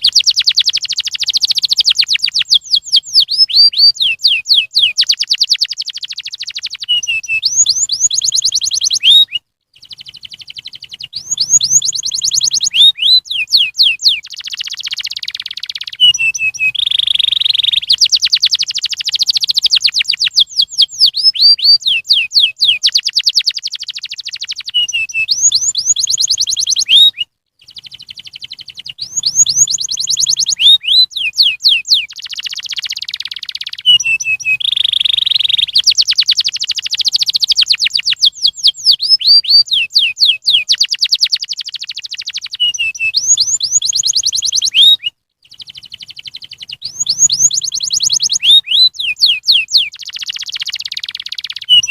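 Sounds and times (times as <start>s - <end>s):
canary singing: 0.0s - 51.9s.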